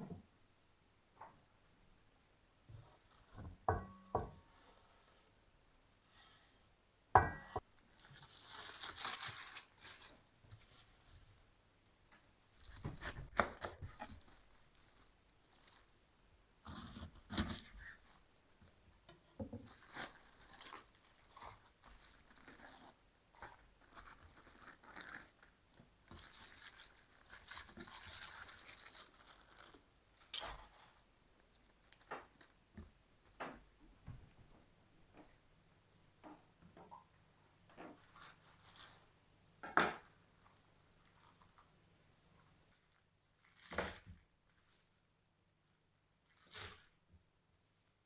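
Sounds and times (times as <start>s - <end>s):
tearing and crinkling: 7.9s - 11.0s, 19.6s - 31.0s, 37.9s - 39.1s, 40.1s - 41.7s, 42.4s - 45.0s, 45.6s - 47.0s.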